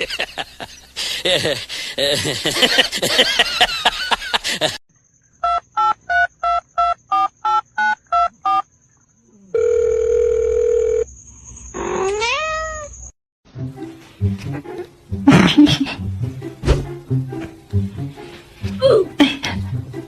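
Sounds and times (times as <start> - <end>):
steady dial tone: 9.5 - 11.1.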